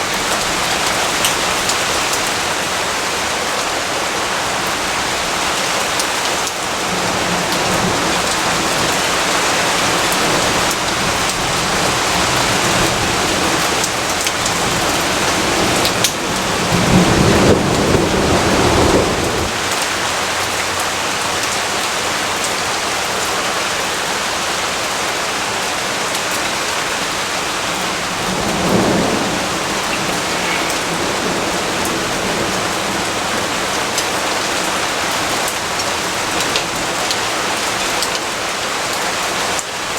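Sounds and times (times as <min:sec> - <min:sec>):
heavy rain: 0:00.0 - 0:39.9
low rumble of thunder: 0:06.8 - 0:19.8, 0:27.5 - 0:34.5.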